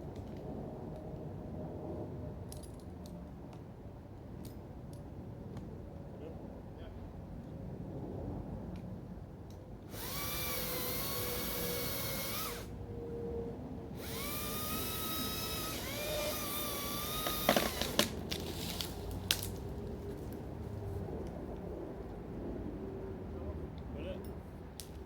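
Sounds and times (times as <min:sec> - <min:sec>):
chainsaw cutting wood: 0:09.9 - 0:12.7, 0:14.0 - 0:19.6
wood cracking: 0:15.3 - 0:20.4.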